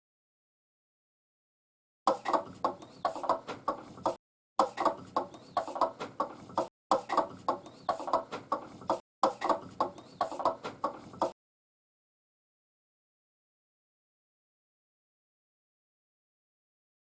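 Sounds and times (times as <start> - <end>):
chicken clucking: 2.1 - 11.4.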